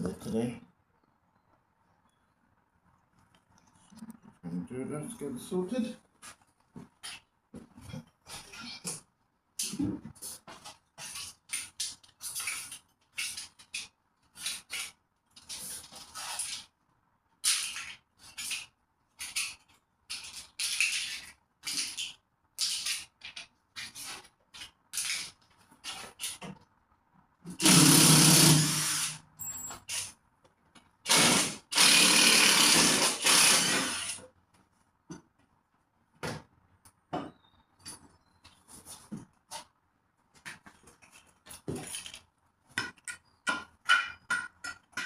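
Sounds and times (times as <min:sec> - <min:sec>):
power tool running in bursts: 0:27.6 - 0:29.2, 0:31.1 - 0:34.2.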